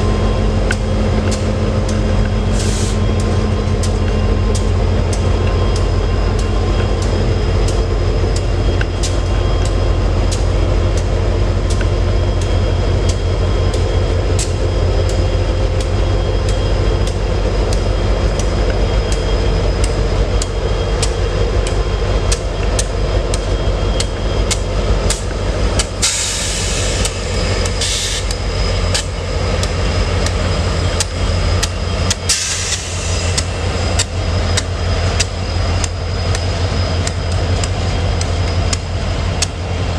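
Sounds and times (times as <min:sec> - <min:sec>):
train rumble: 0:00.0 - 0:39.9
train wheels clicking over rails: 0:00.0 - 0:39.9
hiss bursts: 0:02.5 - 0:03.0, 0:26.0 - 0:28.3, 0:32.3 - 0:33.5.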